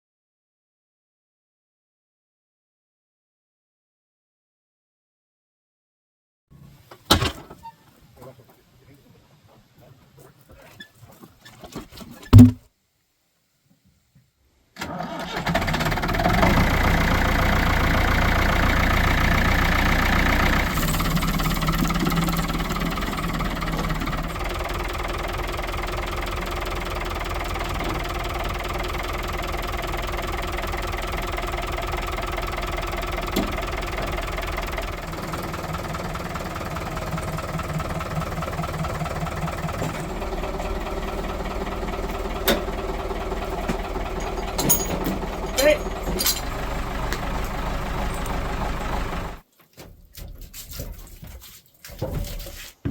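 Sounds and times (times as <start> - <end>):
sharp thump: 12.3 - 12.6
engine starting and idling: 14.8 - 49.4.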